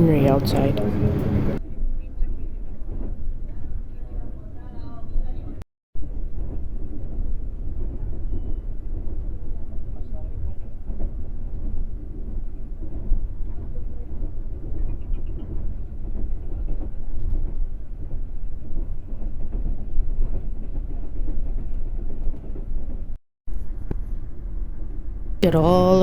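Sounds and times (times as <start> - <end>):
train rumbling from inside coach: 0.0 - 1.6.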